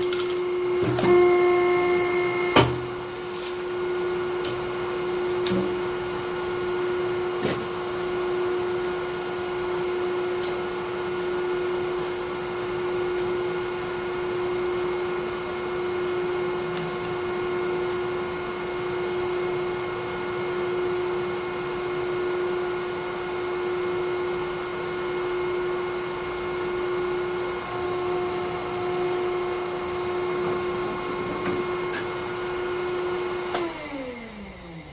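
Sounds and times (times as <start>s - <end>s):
log splitter pump whining: 0.0s - 3.0s, 26.4s - 34.9s.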